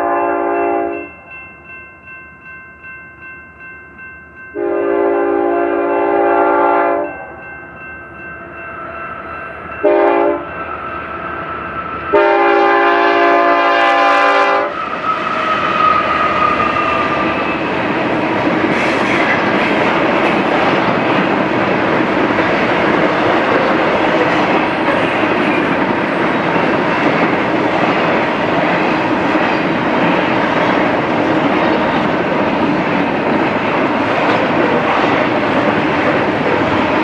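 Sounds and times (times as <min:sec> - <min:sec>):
locomotive air horn chord: 0:00.0 - 0:01.1, 0:04.6 - 0:07.4, 0:09.8 - 0:10.5, 0:12.1 - 0:14.8
train rumble and wheel clatter: 0:00.0 - 0:37.0.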